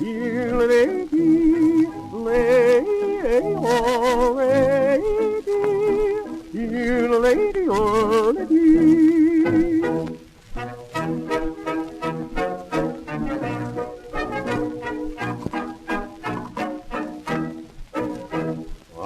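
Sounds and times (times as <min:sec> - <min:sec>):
man yodeling on old record: 0:00.0 - 0:10.1.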